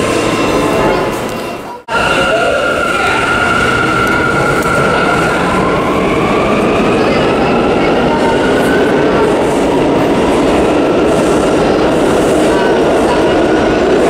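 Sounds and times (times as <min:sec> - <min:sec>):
subway train rumble and rattle: 0:00.0 - 0:14.0.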